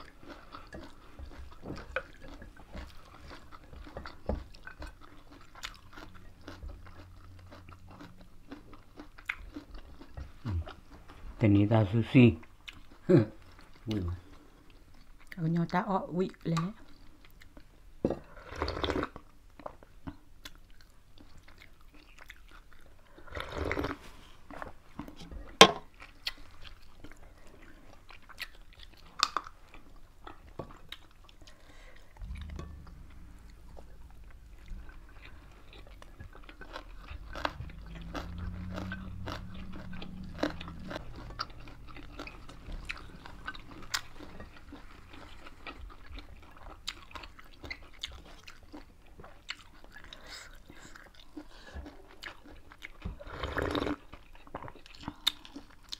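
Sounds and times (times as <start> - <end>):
people chewing and crunching food: 0.0 - 55.9
low hum: 31.7 - 47.2.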